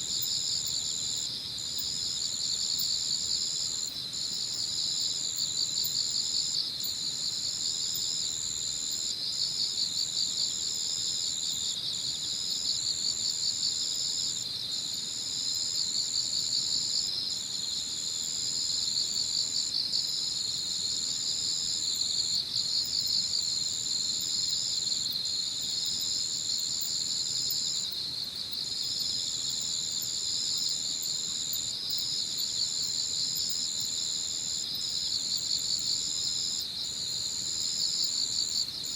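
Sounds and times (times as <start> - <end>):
high insect trill: 17.6 - 38.9.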